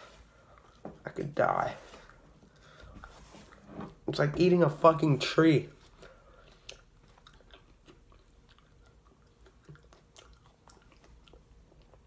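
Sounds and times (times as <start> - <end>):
faint crunchy chewing: 5.6 - 12.0.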